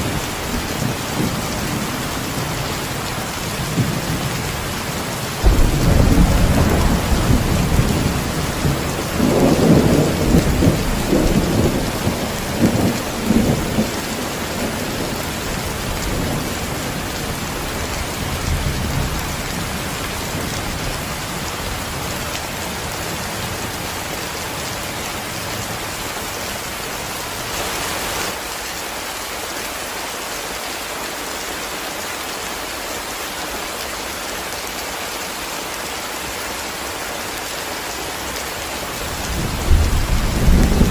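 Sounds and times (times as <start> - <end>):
heavy rain falling: 0.0 - 40.9
rolling thunder: 5.4 - 21.1, 39.1 - 40.9.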